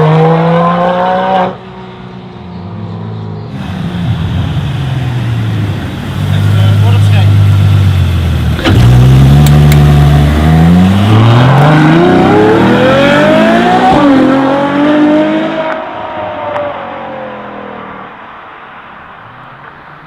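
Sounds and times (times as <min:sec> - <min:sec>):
car engine accelerating hard: 0:03.4 - 0:18.1
gear upshifts: 0:08.3 - 0:14.0.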